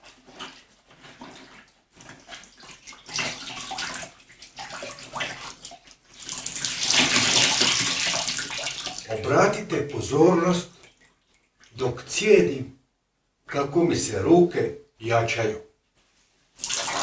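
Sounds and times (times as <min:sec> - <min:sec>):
clothes sloshing in bucket of water: 0:00.0 - 0:11.8, 0:16.5 - 0:17.0
water splashing: 0:00.0 - 0:11.8, 0:16.6 - 0:17.0.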